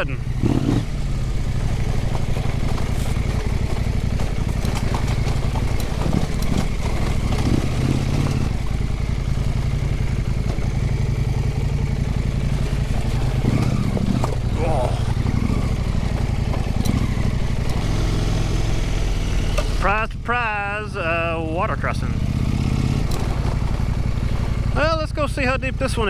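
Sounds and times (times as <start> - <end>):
motorcycle engine running: 0.0 - 26.0
clicks and rattles: 1.7 - 8.6, 12.4 - 17.9, 23.0 - 24.4.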